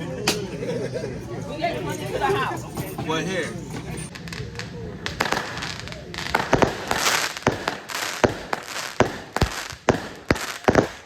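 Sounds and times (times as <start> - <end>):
fireworks crackling: 1.8 - 11.0
fireworks sharp bangs: 3.9 - 11.0.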